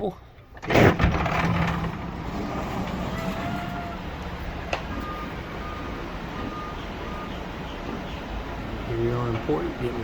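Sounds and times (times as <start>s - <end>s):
reversing alarm beeping: 4.9s - 7.4s.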